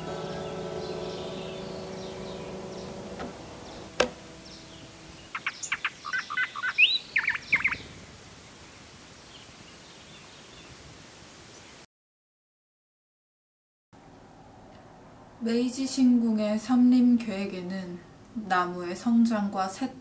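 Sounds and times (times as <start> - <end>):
held music tones: 0.0 - 6.6
small bird chirping: 3.6 - 8.0.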